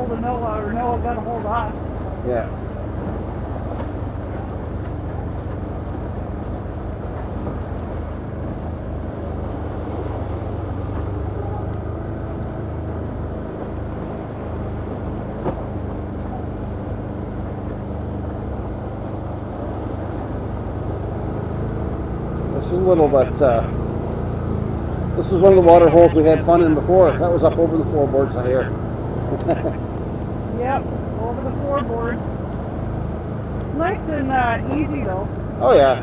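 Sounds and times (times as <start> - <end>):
atv engine running: 0.0 - 36.0.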